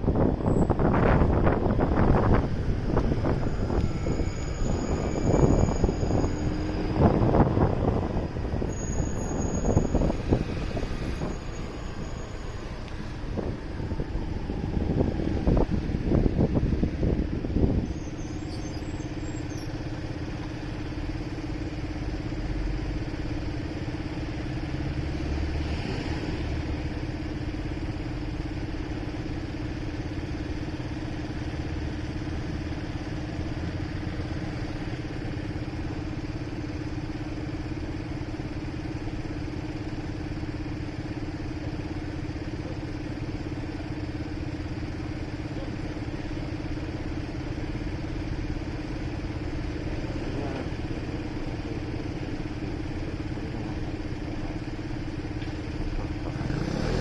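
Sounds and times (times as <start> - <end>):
motorcycle engine idling: 27.0 - 56.4.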